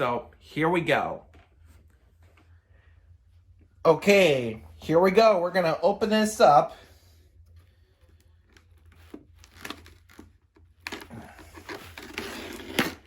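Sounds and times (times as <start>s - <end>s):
packaging tearing and crinkling: 8.9s - 13.0s.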